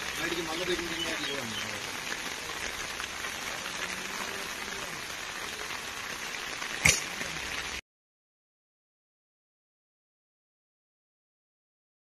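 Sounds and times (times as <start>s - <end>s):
steady rain: 0.0s - 7.8s.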